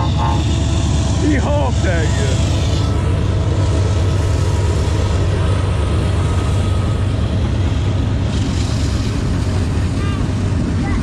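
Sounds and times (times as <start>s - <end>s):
passing train rumbling: 0.0s - 11.0s.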